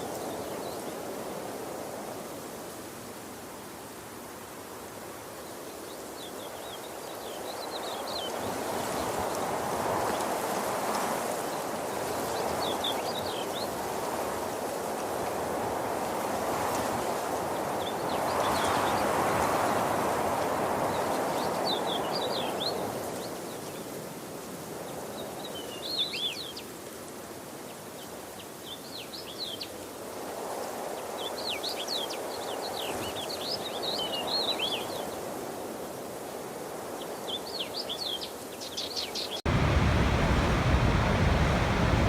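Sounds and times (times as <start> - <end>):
rushing water: 39.4 - 42.0.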